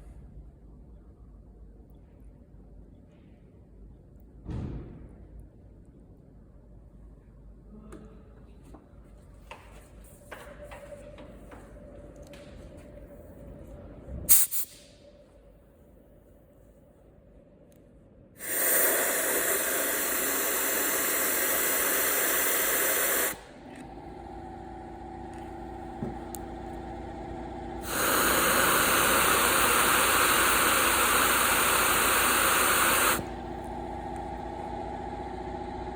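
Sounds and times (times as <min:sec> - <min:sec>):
steady mechanical hum: 0:00.0 - 0:35.9
compressed air hissing: 0:14.3 - 0:14.9, 0:18.4 - 0:23.6, 0:27.8 - 0:33.5.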